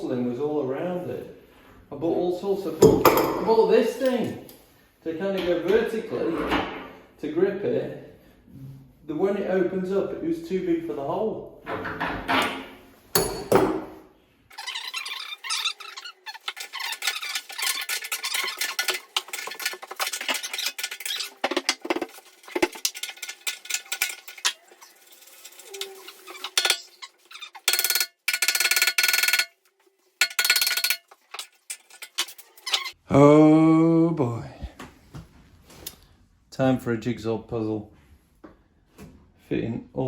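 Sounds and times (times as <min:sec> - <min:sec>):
hand tools clinking and scraping metal: 0:14.5 - 0:33.0.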